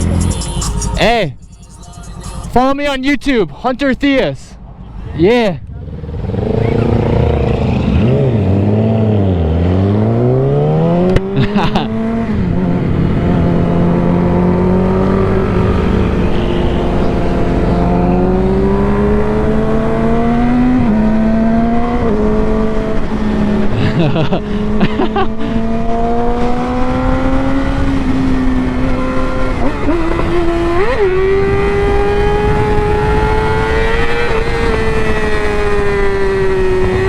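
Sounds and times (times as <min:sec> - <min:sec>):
motorcycle engine accelerating: 0:00.0 - 0:00.9, 0:04.6 - 0:37.0
wind rumble on microphone: 0:25.4 - 0:37.0.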